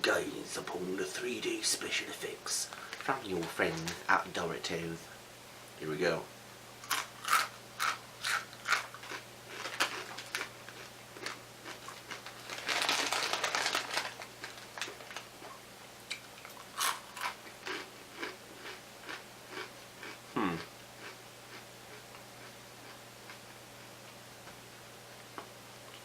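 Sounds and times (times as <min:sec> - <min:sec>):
crinkly rustling: 0:02.7 - 0:04.3, 0:09.5 - 0:15.5
crunchy snacks being chewed: 0:06.8 - 0:23.9.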